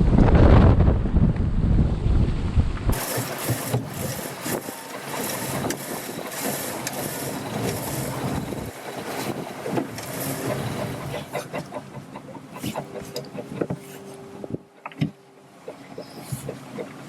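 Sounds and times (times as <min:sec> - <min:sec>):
wind rumbling on microphone: 0:00.0 - 0:11.5
hiss of wind and water: 0:02.9 - 0:17.0.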